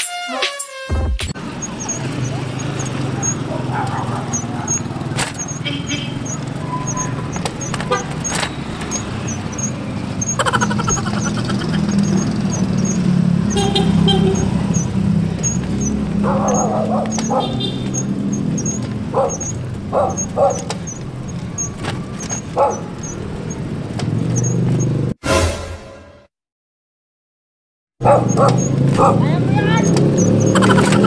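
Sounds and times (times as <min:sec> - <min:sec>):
light regular ticking: 0:01.4 - 0:24.9
wind and road rumble: 0:01.4 - 0:25.2, 0:28.0 - 0:31.0.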